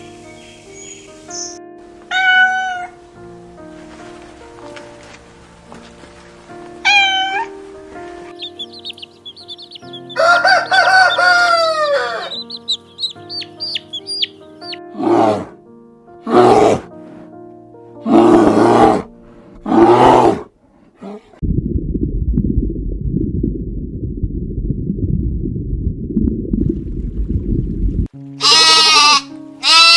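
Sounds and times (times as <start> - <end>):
background music: 0.0 - 20.4, 28.1 - 29.9
chickens chirping: 8.3 - 14.8
loud harsh chicken calls: 8.5 - 14.8
rooster crowing: 9.9 - 12.5.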